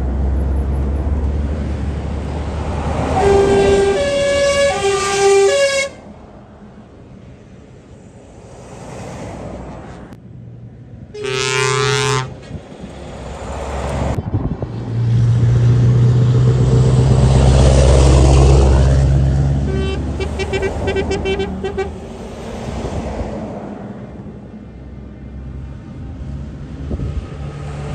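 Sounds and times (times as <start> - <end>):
truck passing: 0.0 - 27.9
truck horn blasts: 2.8 - 6.1, 11.2 - 12.6, 19.6 - 22.1.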